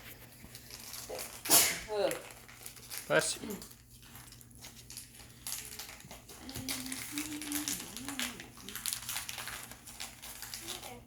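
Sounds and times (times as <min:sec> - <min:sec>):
plastic packaging crinkling: 0:00.0 - 0:11.0
faint wavering hum: 0:02.3 - 0:11.0.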